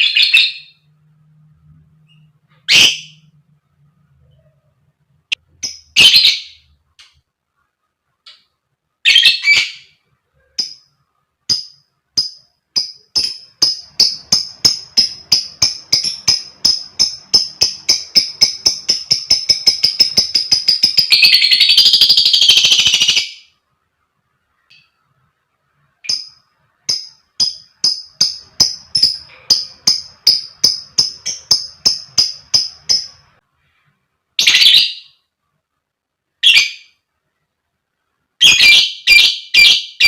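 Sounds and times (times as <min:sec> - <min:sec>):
lovebird harsh squawks: 0:02.7 - 0:03.2
lovebird rattling chirp chatter: 0:11.5 - 0:23.3, 0:26.0 - 0:33.4.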